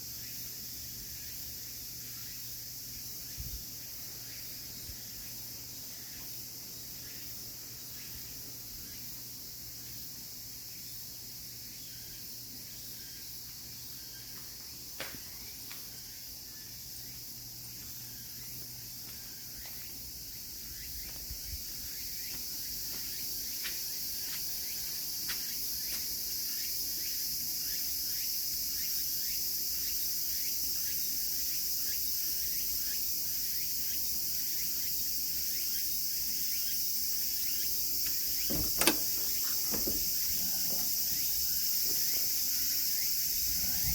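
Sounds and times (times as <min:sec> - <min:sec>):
insects chorus: 0:00.0 - 0:43.9
short knocks: 0:38.4 - 0:41.1.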